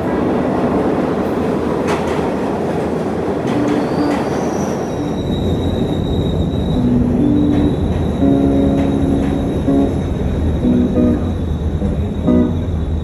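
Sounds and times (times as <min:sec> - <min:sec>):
subway train rumbling: 0:00.0 - 0:13.0
high wheel squeal: 0:03.5 - 0:10.2.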